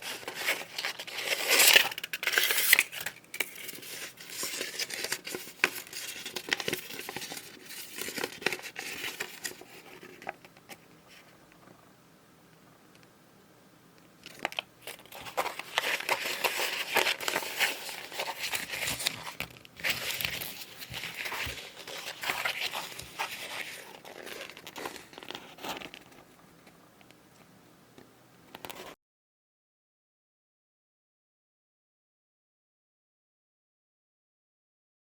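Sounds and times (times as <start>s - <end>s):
packaging crinkling and rustling: 0.0s - 11.2s, 14.2s - 26.3s.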